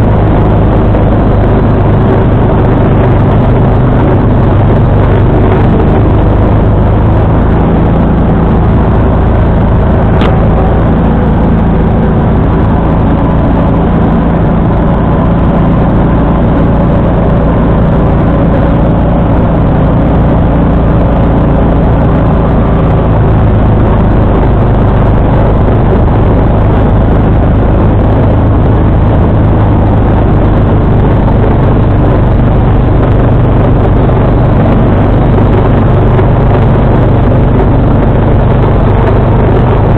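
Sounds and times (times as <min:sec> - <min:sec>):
garden tractor engine running: 0:00.0 - 0:39.9
snowblower through snow: 0:00.0 - 0:39.9.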